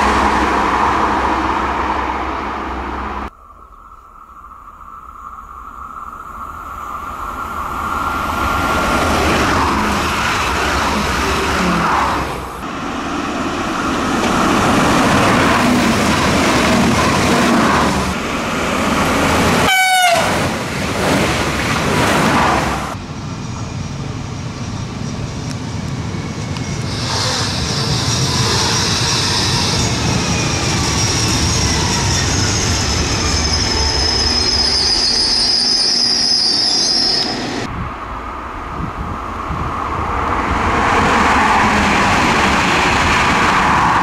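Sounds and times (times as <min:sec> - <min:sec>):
trains running past at speed: 0:00.0 - 0:03.4, 0:04.7 - 0:44.0
train horn toot: 0:19.6 - 0:20.4.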